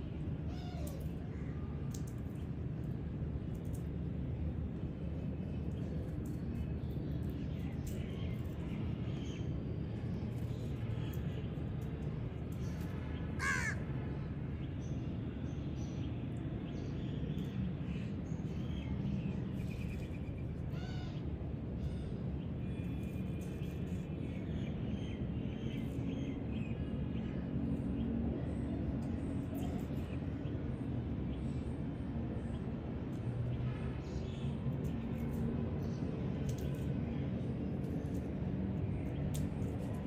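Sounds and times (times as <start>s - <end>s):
bird cawing: 13.4s - 13.8s.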